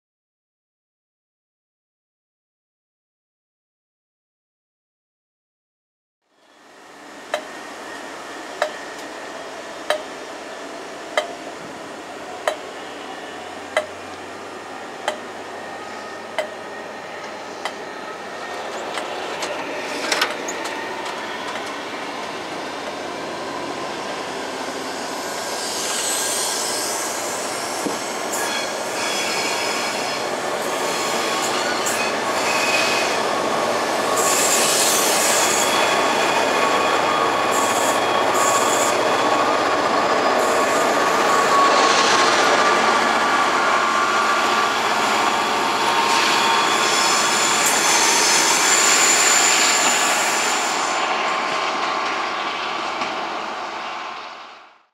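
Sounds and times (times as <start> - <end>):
train wheels rumbling on rails: 6.9 - 54.7
high-pitched wheel squeal: 24.9 - 33.4, 34.1 - 43.0, 43.6 - 51.5.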